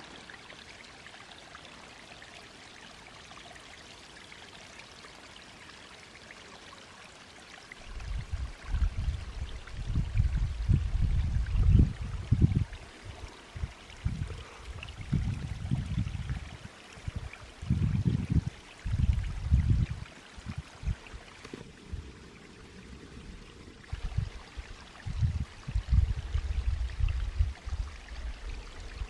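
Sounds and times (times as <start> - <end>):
wind buffeting microphone: 7.8 - 29.0.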